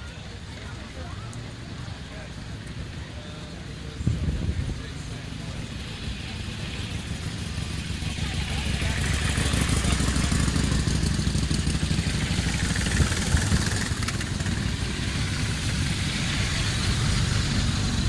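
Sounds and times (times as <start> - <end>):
motorcycle engine running at low revs: 4.0 - 18.0.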